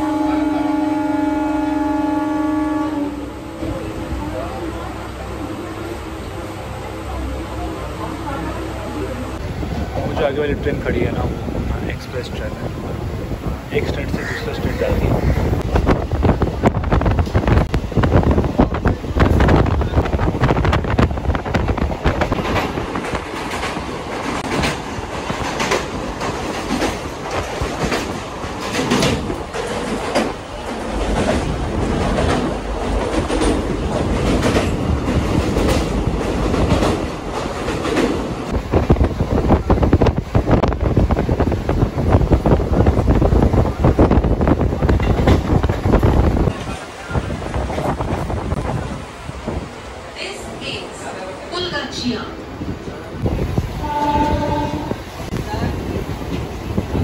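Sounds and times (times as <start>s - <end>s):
train wheels rumbling on rails: 0.0s - 57.0s
wheels clacking over rail joints: 18.9s - 40.2s.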